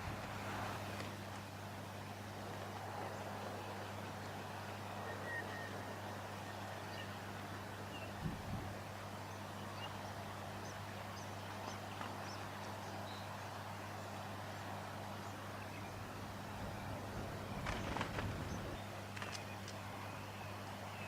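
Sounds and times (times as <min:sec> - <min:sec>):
crackle: 0:17.6 - 0:19.8.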